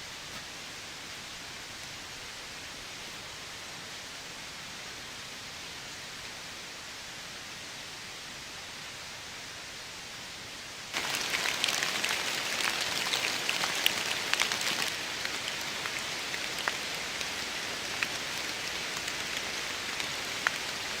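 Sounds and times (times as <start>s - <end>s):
rain falling: 0.0s - 21.0s
raindrops striking sharply: 10.9s - 21.0s.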